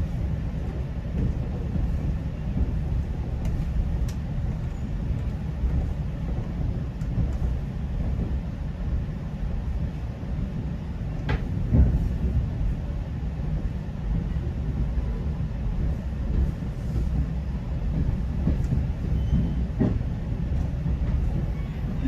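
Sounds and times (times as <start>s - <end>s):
train rumbling on rails: 0.0s - 22.0s
train wheels knocking: 0.6s - 8.5s, 15.8s - 22.0s.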